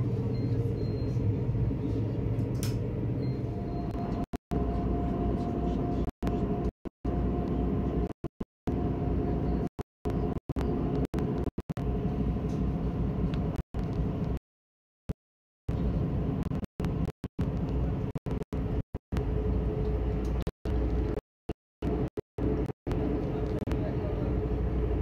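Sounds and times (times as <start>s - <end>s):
faint held hums: 0.0s - 8.1s
train running rumble: 0.0s - 8.1s, 8.7s - 14.4s, 21.8s - 25.0s.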